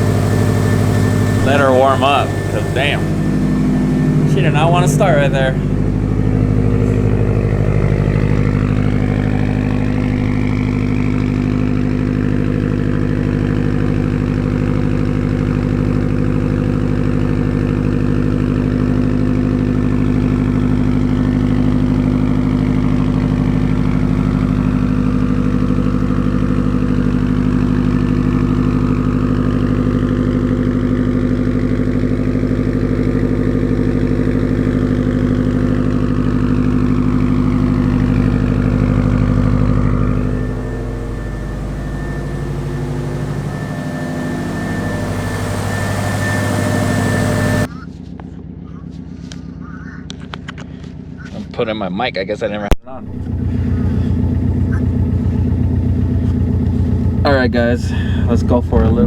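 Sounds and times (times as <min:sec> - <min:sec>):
car engine idling: 0:00.0 - 0:47.7, 0:52.8 - 0:59.0.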